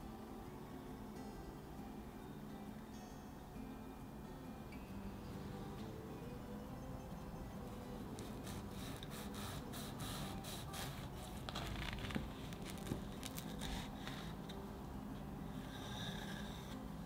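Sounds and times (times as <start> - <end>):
knife cutting crunchy pastry: 10.8 - 14.3.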